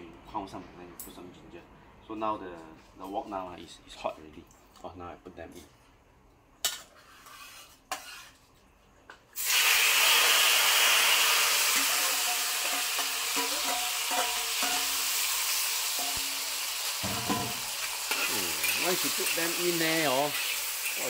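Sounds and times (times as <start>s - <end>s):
metal spatula scraping a wok: 6.6s - 8.6s, 11.2s - 21.0s
meat sizzling in a wok: 9.4s - 21.0s.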